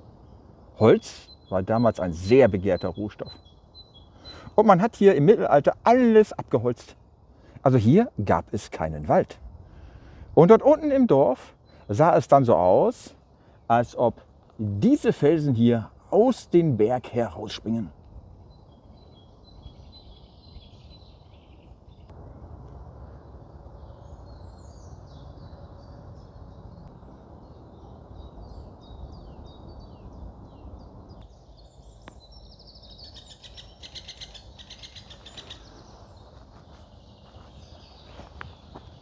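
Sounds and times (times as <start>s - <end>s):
low rushing noise: 22.0s - 31.3s
bird fast trill: 27.7s - 36.3s.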